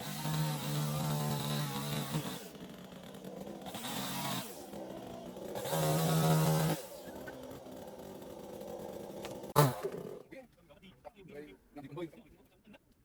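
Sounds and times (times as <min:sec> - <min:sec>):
chainsaw engine revving: 0:00.0 - 0:10.3.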